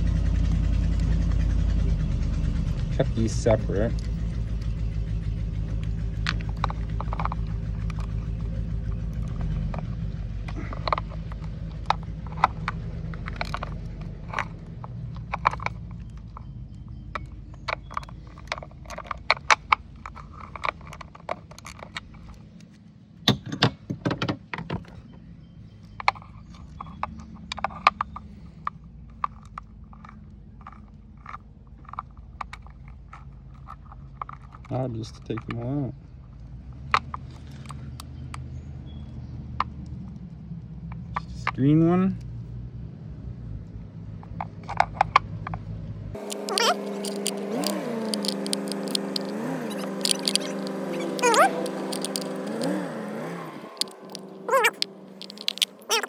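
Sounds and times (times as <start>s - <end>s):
metallic clicks of hand tools: 46.2s - 56.0s.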